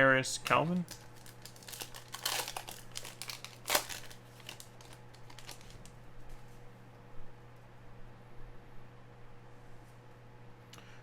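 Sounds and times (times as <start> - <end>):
foil wrapper crinkling: 0.4 - 6.0.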